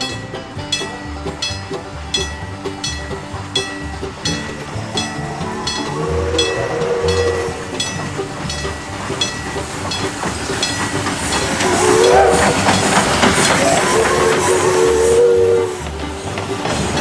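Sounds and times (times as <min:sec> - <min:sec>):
steam locomotive exhaust beats: 0:00.0 - 0:17.0
low steam whistle: 0:04.5 - 0:17.0
steam hiss: 0:04.5 - 0:17.0.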